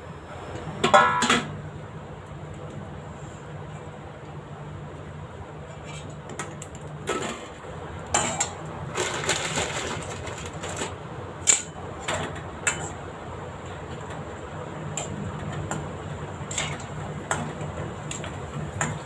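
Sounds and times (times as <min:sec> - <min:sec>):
low steady hum: 0:00.0 - 0:19.0
food crackling in hot oil: 0:06.0 - 0:13.0.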